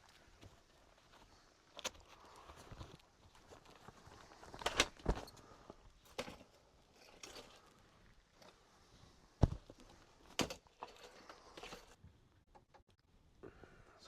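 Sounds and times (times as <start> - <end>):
knocks and thumps: 9.4 - 10.6.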